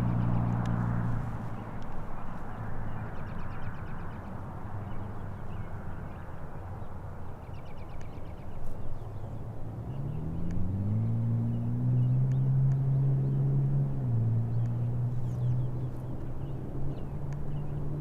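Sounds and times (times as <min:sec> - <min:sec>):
engine tone rising in pitch: 0:00.0 - 0:01.2, 0:09.8 - 0:15.8
low engine rumble: 0:00.0 - 0:18.0.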